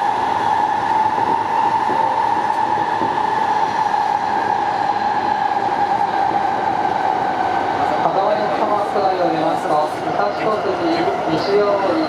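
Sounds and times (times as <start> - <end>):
electric train rolling rumble: 0.0 - 12.0.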